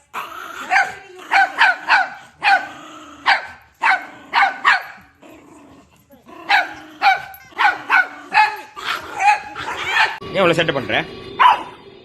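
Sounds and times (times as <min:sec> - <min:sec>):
small dog barking: 0:00.6 - 0:05.1, 0:06.4 - 0:10.2, 0:11.4 - 0:11.8.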